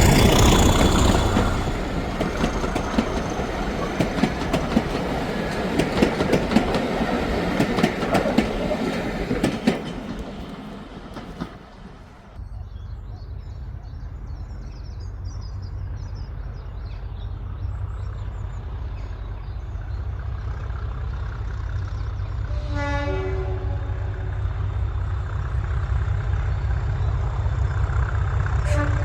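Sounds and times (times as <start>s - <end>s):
diesel locomotive rumble: 0.0s - 29.0s
two-tone train horn: 22.4s - 24.7s, 28.6s - 29.0s.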